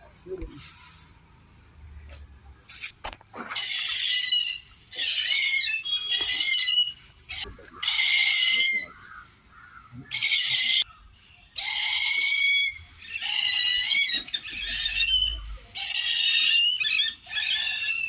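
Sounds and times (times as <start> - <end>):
hornbill harsh squealing calls: 3.5 - 10.9, 11.6 - 18.0.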